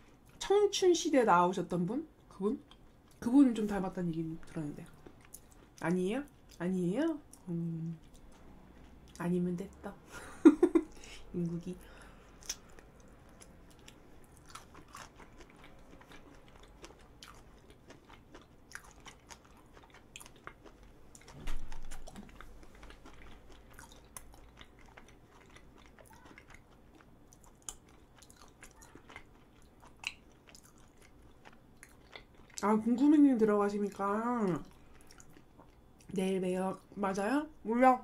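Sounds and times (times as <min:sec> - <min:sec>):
chewing mouth clicks: 0:12.4 - 0:32.6.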